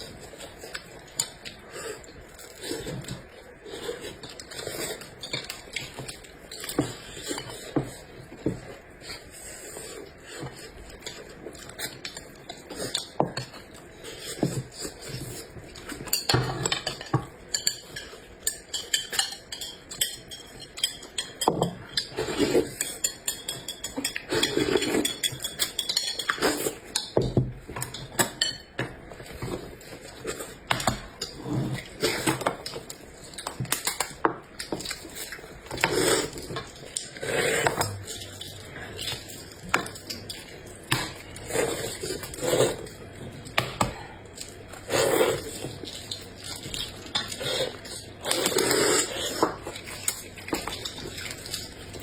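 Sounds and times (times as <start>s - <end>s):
cutlery clinking against dishes: 16.0s - 29.6s
chewing and mouth sounds: 29.2s - 52.0s.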